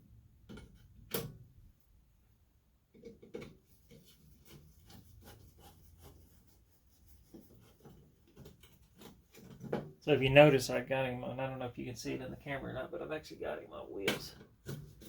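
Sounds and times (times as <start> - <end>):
tools and parts clicking and knocking: 2.9 - 3.6, 7.9 - 10.0.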